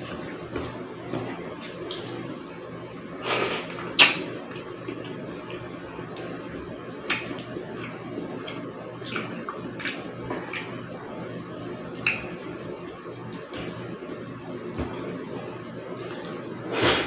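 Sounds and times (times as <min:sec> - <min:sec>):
steady low hum: 0:00.0 - 0:17.0
person chewing and mouth smacks: 0:03.4 - 0:06.4, 0:07.0 - 0:10.8.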